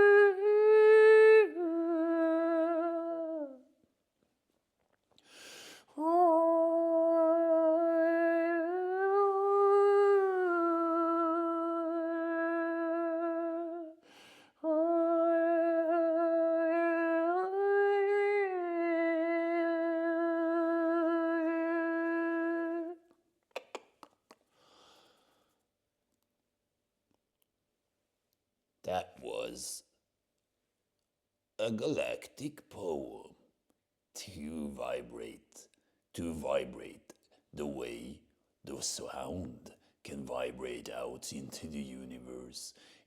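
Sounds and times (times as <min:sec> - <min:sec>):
breath: 0:05.2 - 0:05.9, 0:14.0 - 0:14.6, 0:24.5 - 0:25.6, 0:42.8 - 0:43.0
person humming long notes: 0:14.7 - 0:23.0.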